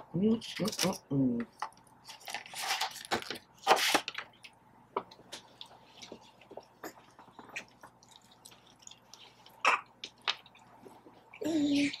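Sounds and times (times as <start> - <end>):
chewing: 5.4 - 12.0.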